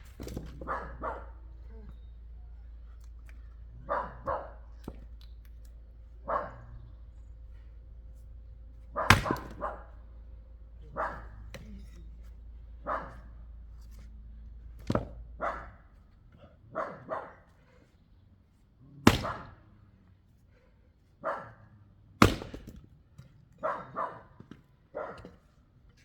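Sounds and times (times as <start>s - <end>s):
axe striking wood: 0.0s - 0.8s, 4.2s - 5.4s, 9.0s - 9.8s, 14.8s - 15.2s, 19.0s - 19.6s, 22.2s - 22.9s
dog barking: 0.5s - 2.0s, 3.8s - 4.9s, 6.2s - 6.8s, 8.9s - 10.0s, 10.8s - 11.5s, 12.8s - 13.4s, 15.4s - 17.5s, 21.2s - 21.7s, 23.6s - 25.3s.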